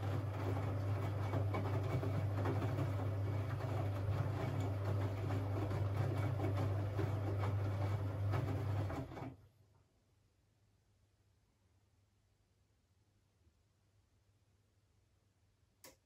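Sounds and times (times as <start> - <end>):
washing machine running: 0.0 - 9.4.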